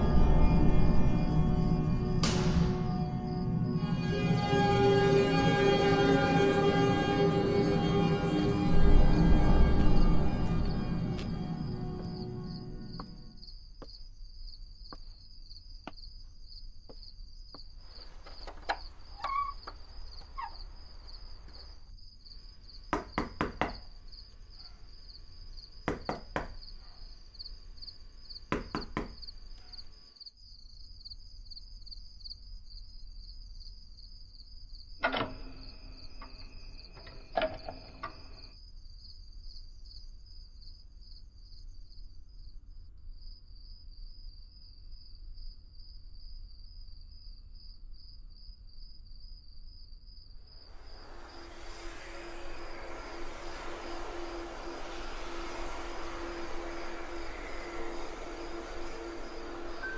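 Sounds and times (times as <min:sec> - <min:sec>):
crickets chirping: 0:00.0 - 0:59.9
hand knocking on wood paneling: 0:25.9 - 0:26.6.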